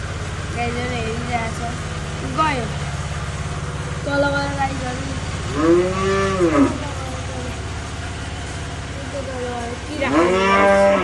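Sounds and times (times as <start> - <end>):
engine idling: 0.0 - 11.0
animal drawn-out call: 10.0 - 11.0.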